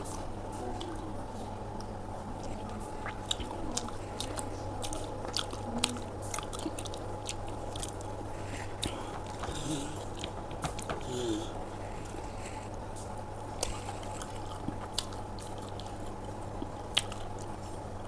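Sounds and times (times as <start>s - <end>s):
low background hum: 0.0s - 18.0s
person chewing food: 1.8s - 18.0s
wet mouth clicks and smacks: 16.6s - 17.3s.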